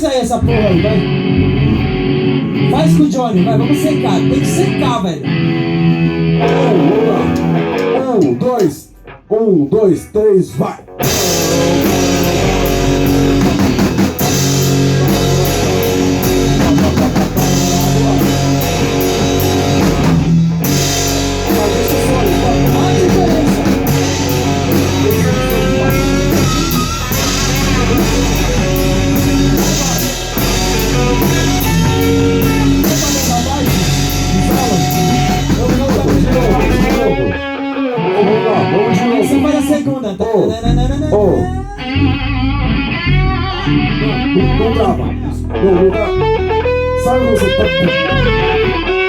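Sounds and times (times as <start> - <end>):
rock band playing: 0.0 - 49.0.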